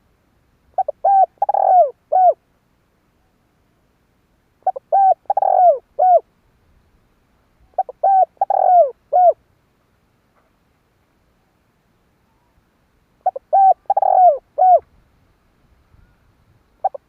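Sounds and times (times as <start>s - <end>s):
dove cooing: 0.7s - 2.4s, 4.6s - 6.3s, 7.7s - 9.4s, 13.2s - 14.9s, 16.8s - 17.0s.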